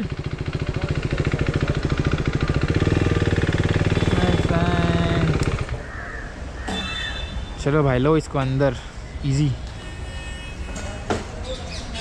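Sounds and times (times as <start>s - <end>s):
motorcycle engine running: 0.0s - 5.9s.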